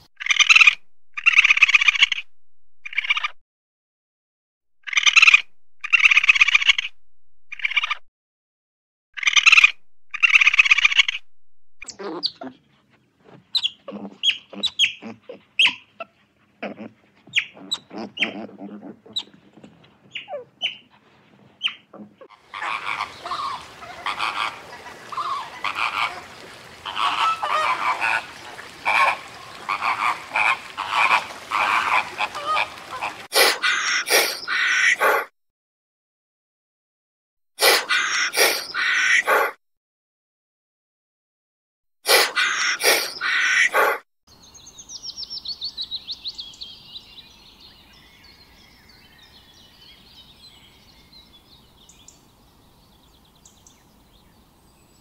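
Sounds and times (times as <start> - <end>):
animal calls and chatters: 11.8 - 35.3, 37.6 - 39.6, 42.1 - 44.0
flamingos honking: 22.0 - 35.1.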